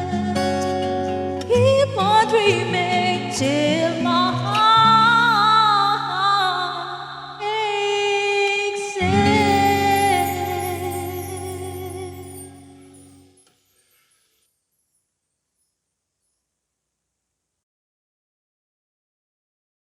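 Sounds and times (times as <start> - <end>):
woman singing vocal runs: 1.5 - 13.0.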